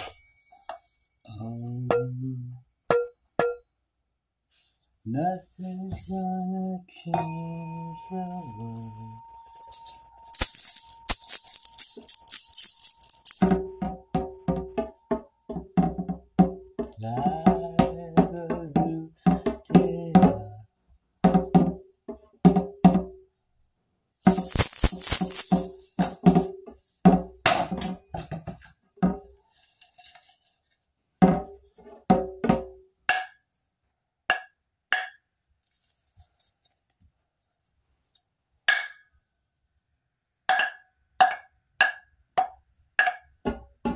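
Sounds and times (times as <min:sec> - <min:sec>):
shaken jingling percussion: 0:05.6 - 0:06.9, 0:07.9 - 0:13.8, 0:24.2 - 0:26.5.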